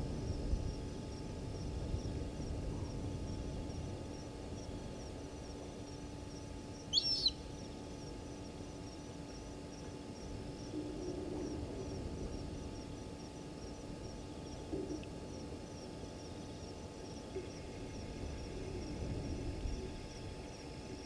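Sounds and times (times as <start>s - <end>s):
high-pitched chirping: 7.0s - 7.4s.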